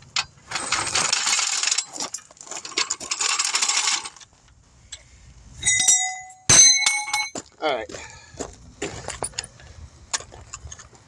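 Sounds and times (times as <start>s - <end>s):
metallic rattling and clicking: 0.0s - 4.3s, 5.8s - 7.4s.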